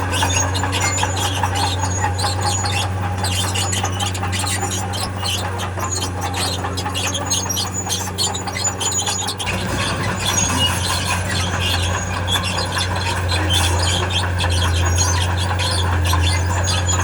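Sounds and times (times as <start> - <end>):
diesel engine humming: 0.0 - 17.0
steel tracks squealing and scraping: 0.0 - 17.0.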